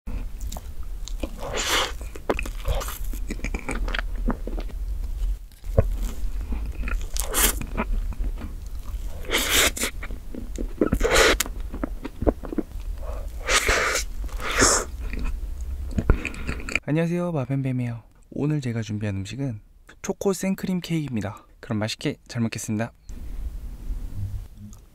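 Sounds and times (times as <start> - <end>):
person biting and chewing cake: 0.1 - 16.8.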